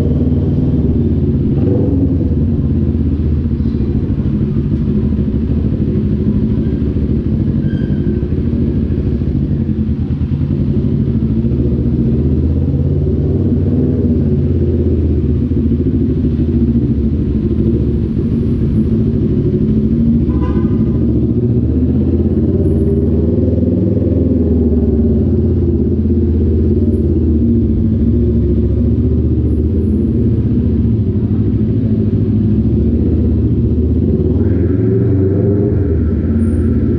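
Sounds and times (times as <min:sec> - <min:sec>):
motorcycle engine running loudly: 0:00.0 - 0:36.9.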